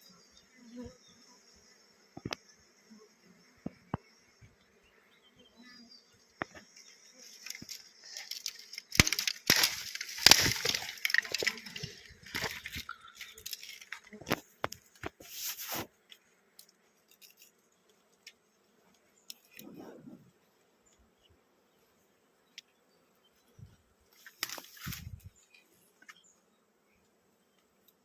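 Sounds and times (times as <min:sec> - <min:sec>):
faint high bee buzz: 0:00.0 - 0:08.5, 0:11.4 - 0:28.0
rustling and crackling: 0:06.4 - 0:20.4, 0:24.1 - 0:26.3.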